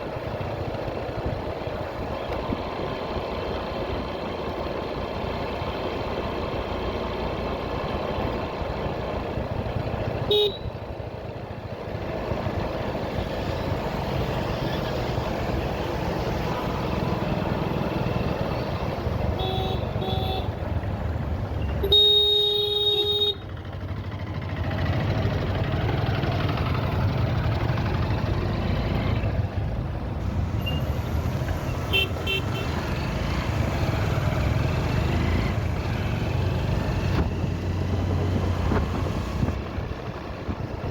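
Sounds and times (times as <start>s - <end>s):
motorcycle engine and road rumble: 0.0s - 40.9s
vehicle horns honking: 10.3s - 10.7s, 19.3s - 20.6s, 21.8s - 23.4s, 31.7s - 32.8s.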